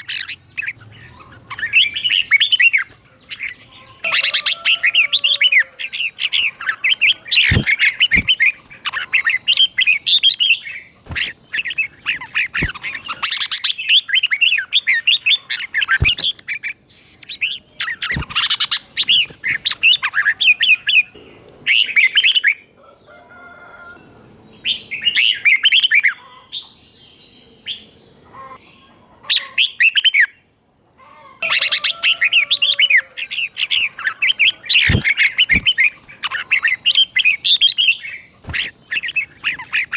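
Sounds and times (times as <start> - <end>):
bird warbling: 0.0 - 21.9, 31.4 - 39.9.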